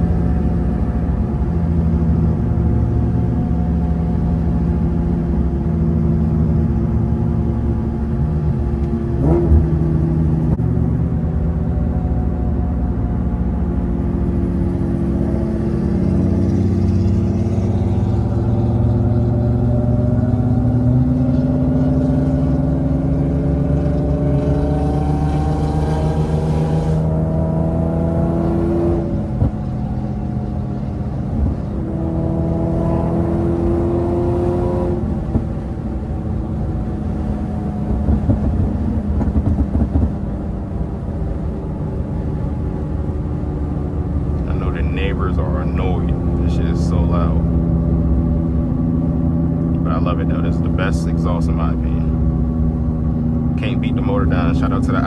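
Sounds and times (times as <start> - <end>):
car engine revving: 0.0 - 55.0
exhaust pops: 37.8 - 40.6.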